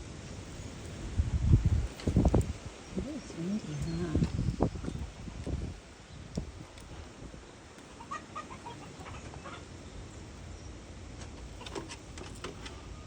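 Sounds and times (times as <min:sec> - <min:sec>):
wind rumble on microphone: 0:00.0 - 0:07.6
peacock clucking: 0:07.8 - 0:09.8.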